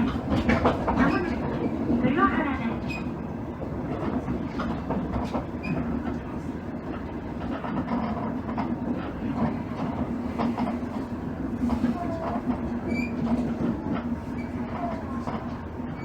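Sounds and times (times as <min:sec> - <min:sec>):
wheels clicking over rail joints: 0:00.0 - 0:02.1, 0:02.8 - 0:16.0
railcar engine and running gear hum: 0:00.0 - 0:16.0.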